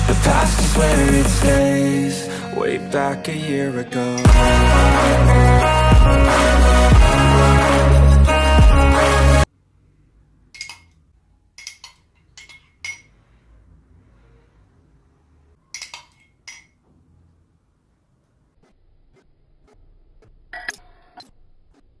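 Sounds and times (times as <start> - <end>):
dishes and utensils clinking: 10.5 - 11.0, 11.6 - 13.2, 15.7 - 16.8.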